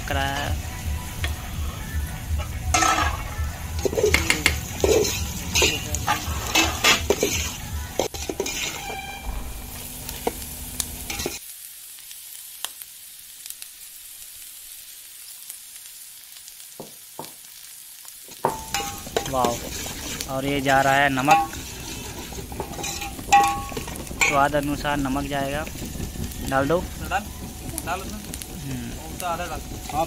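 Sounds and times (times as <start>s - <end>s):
onions sizzling in oil: 0.0s - 30.0s
metal skimmer scraping a pot: 3.8s - 9.5s, 18.7s - 24.4s.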